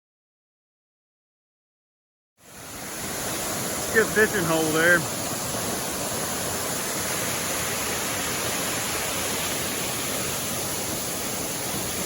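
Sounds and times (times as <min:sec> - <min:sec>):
waterfall roaring: 0:02.4 - 0:12.0.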